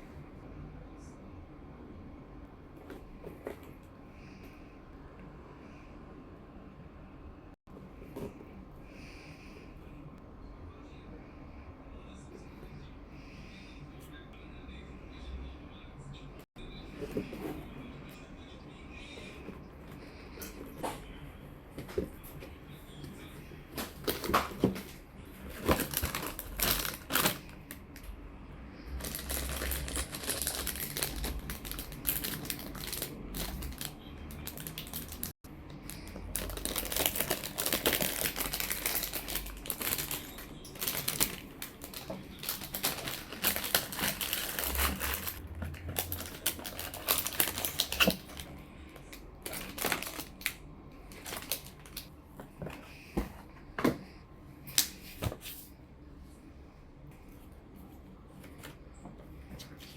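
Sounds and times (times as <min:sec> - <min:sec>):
plastic packaging crinkling: 0:25.5 - 0:27.8, 0:28.9 - 0:52.1.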